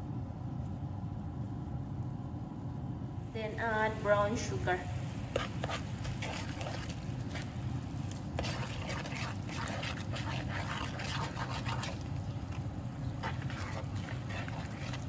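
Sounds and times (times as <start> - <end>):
plastic spoon scraping pan: 5.3 - 7.5, 8.3 - 15.0
broth bubbling and popping: 5.3 - 15.0.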